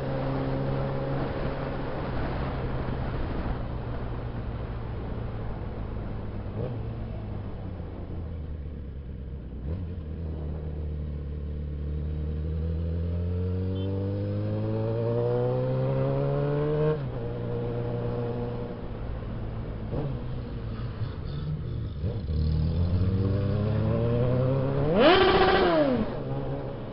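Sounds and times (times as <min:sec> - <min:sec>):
motorcycle engine revving: 0:09.6 - 0:18.8, 0:21.5 - 0:26.9.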